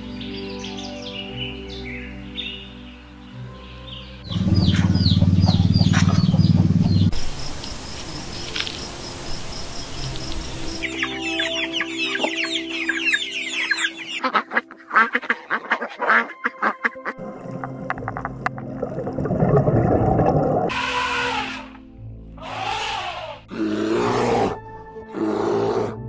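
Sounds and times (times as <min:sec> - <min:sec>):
songbirds chirping: 0:00.0 - 0:17.1
geese and goslings calling: 0:10.4 - 0:17.2
hen clucking: 0:10.9 - 0:17.2.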